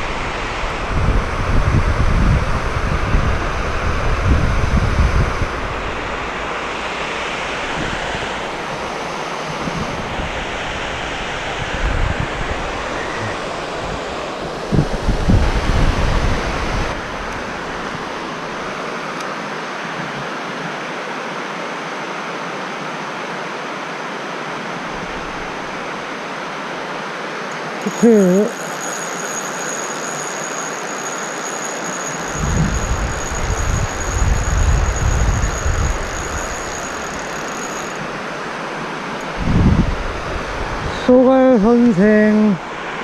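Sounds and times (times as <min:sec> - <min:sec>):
wind buffeting microphone: 0:00.0 - 0:18.7, 0:32.2 - 0:38.2, 0:39.3 - 0:41.2
low rumbling blasts: 0:00.0 - 0:18.8
steady rushing hiss: 0:00.0 - 0:43.0.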